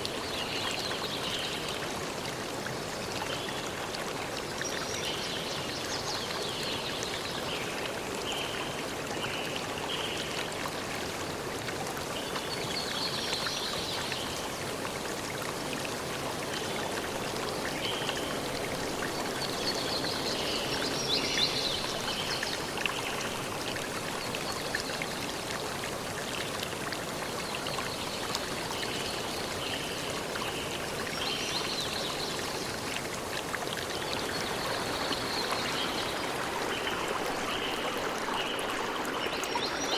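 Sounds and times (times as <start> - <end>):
stream rushing: 32.7 - 39.9.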